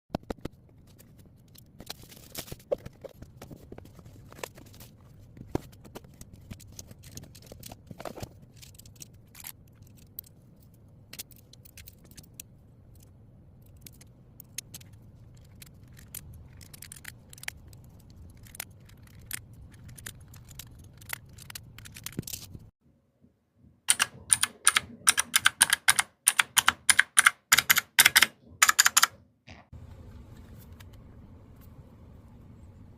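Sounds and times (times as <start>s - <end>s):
keyboard keys clicking: 23.9s - 29.2s.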